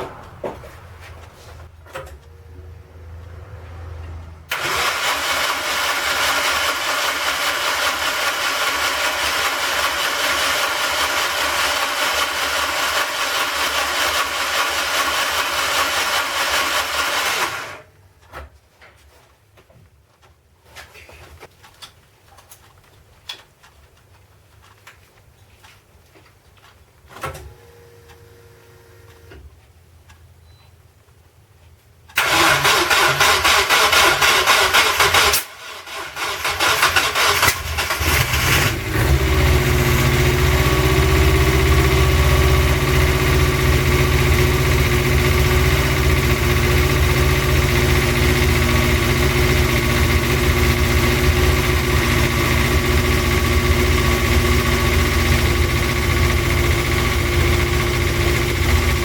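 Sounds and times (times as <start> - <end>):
engine turning over on starter: 0.0 - 17.9, 32.1 - 59.0.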